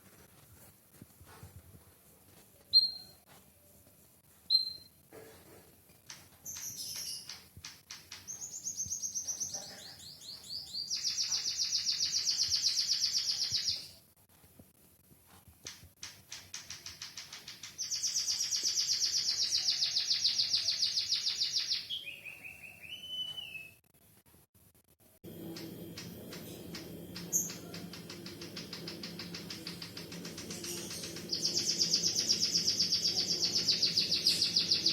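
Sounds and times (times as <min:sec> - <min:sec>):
soft bird chirps: 0:04.5 - 0:05.0, 0:08.2 - 0:14.0, 0:17.7 - 0:23.8, 0:25.5 - 0:34.9
bird high fast trills: 0:26.7 - 0:34.9.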